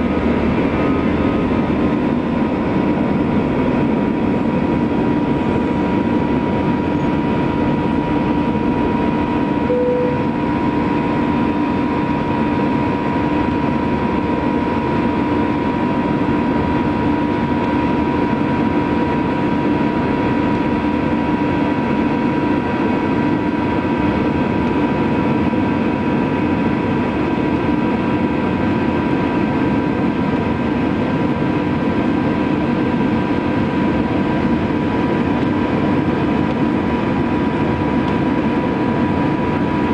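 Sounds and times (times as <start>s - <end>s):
jet engines roaring with whine: 0.0s - 39.9s.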